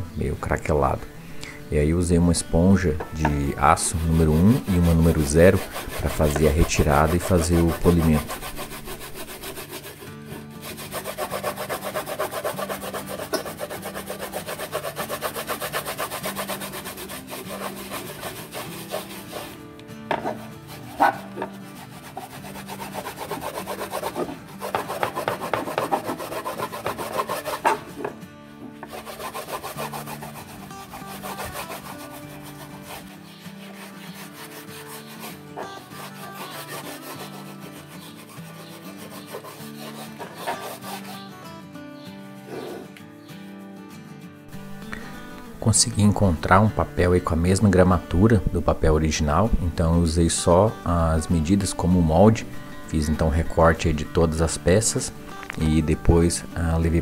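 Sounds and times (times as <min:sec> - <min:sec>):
background music: 0:00.0 - 0:57.0
steel wool scrubbing wood: 0:03.2 - 0:41.4.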